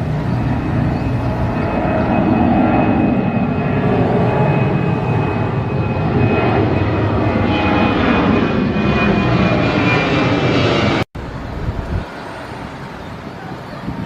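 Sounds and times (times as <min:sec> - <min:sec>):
airliner engines rumbling: 0:00.0 - 0:14.0
high engine whine: 0:00.0 - 0:14.0.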